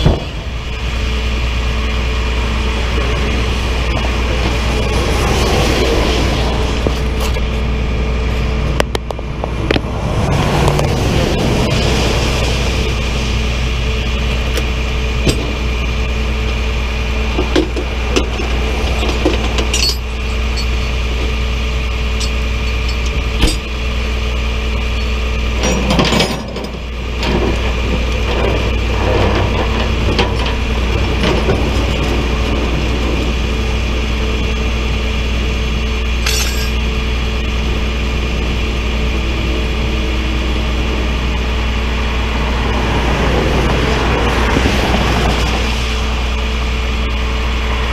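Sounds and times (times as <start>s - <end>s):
truck engine running: 0.0s - 47.9s
metallic clinks and knocks: 19.0s - 21.0s, 22.2s - 23.7s, 36.2s - 36.8s.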